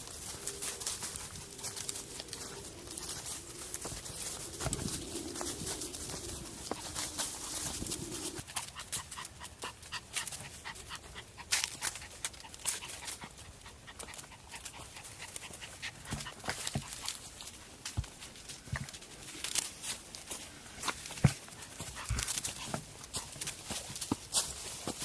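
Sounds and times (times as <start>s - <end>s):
dog panting: 0.0s - 17.4s.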